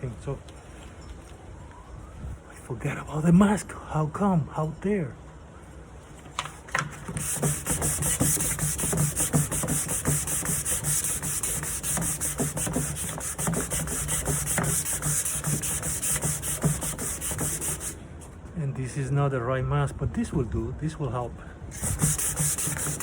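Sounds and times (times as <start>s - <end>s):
sandpaper sanding wood: 7.0s - 18.0s, 21.7s - 23.0s.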